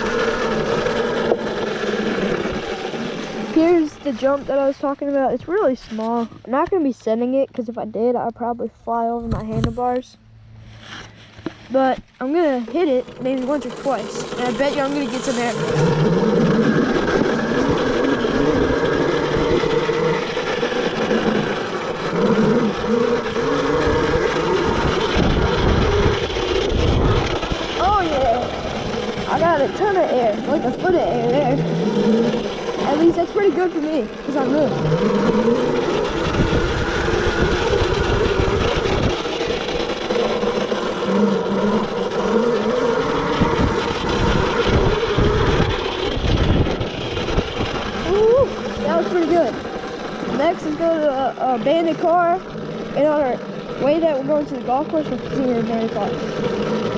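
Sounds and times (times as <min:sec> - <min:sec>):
electric motor whine: 0:00.0 - 0:06.8, 0:10.3 - 0:56.9
steady rushing noise: 0:00.0 - 0:07.4, 0:08.7 - 0:56.9
low rumble of riding: 0:00.0 - 0:56.9.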